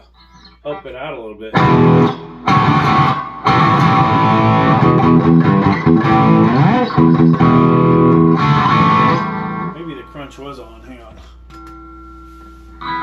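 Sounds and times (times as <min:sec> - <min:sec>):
electric guitar strumming chord riff: 0:01.5 - 0:10.1.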